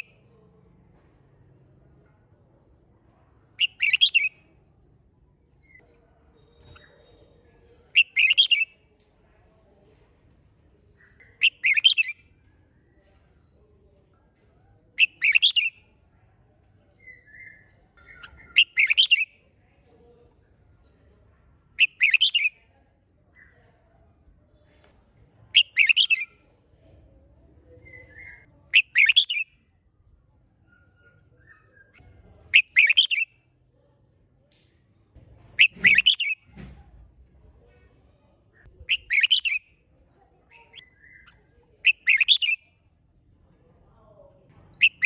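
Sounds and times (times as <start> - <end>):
bulbul singing: 3.4 - 4.5, 7.9 - 9.0, 10.8 - 12.4, 15.0 - 15.9, 17.0 - 19.5, 21.8 - 22.6, 25.6 - 26.4, 27.7 - 29.7, 31.5 - 33.4, 34.5 - 36.6, 38.6 - 39.9, 40.6 - 42.8, 44.5 - 45.0
faint bird notes: 35.3 - 37.3.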